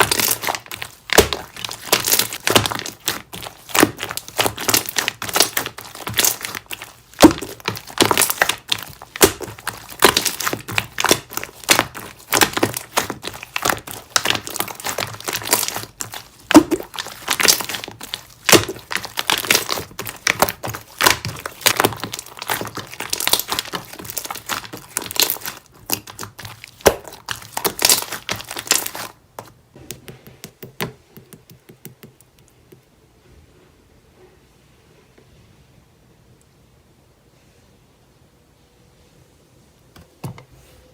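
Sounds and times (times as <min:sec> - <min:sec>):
slime squished by hand: 0:00.0 - 0:32.6.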